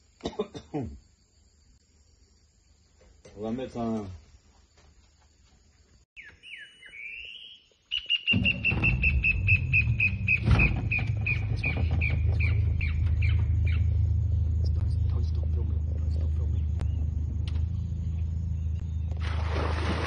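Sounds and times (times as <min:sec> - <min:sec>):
bird calling sharp notes: 0:06.2 - 0:14.3
low steady rumble: 0:08.4 - 0:19.8.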